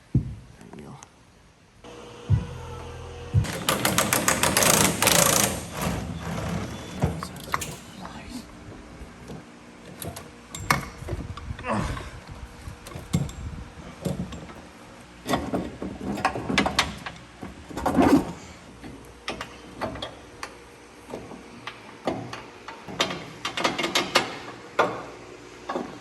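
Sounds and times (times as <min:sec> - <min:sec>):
hand tools clanking on metal: 0:03.5 - 0:08.0.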